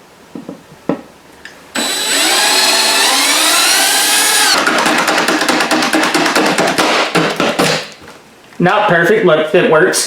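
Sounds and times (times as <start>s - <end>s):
power drill motor whine: 1.8s - 4.7s
drill bit chattering: 1.8s - 5.2s.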